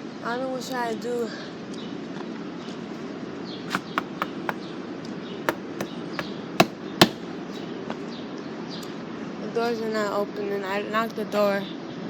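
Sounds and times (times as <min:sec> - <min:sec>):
knocking on a door: 0:03.7 - 0:04.6, 0:05.5 - 0:05.9, 0:06.6 - 0:07.2.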